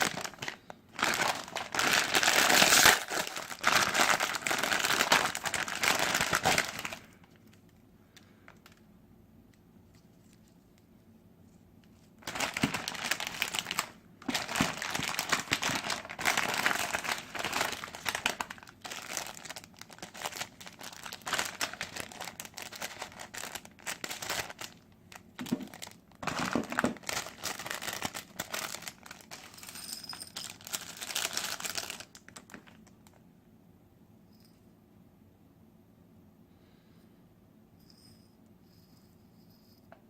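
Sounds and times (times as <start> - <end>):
plastic packaging crinkling: 0.0 - 8.9, 11.9 - 33.2.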